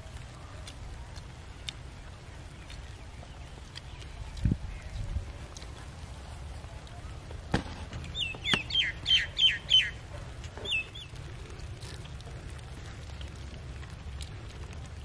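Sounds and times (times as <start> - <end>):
bird chirping: 1.4 - 5.6, 6.8 - 11.2.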